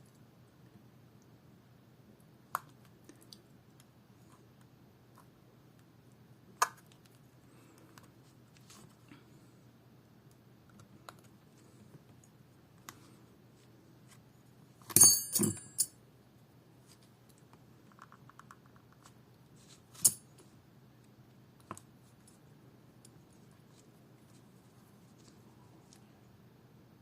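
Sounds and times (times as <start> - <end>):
low steady hum: 0.0 - 27.0
metal tools clinking: 15.0 - 15.9.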